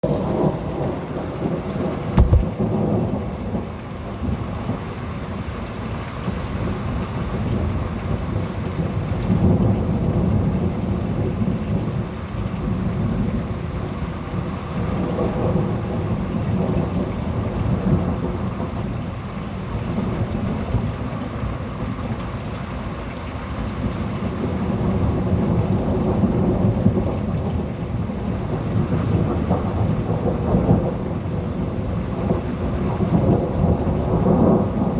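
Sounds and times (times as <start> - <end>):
steady rain: 0.0 - 34.9
thunder rumbling: 0.1 - 3.7
loud thunder crack: 2.2 - 3.1.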